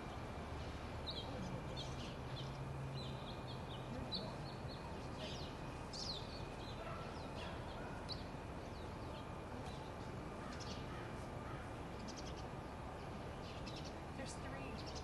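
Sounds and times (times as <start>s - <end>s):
birds chirping: 0.0s - 15.0s
low outdoor background rumble: 0.0s - 15.0s.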